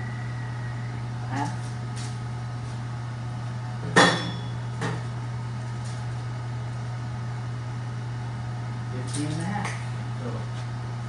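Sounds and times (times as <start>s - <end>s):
steady low hum: 0.0s - 11.0s
metallic clank with ring: 4.0s - 4.6s.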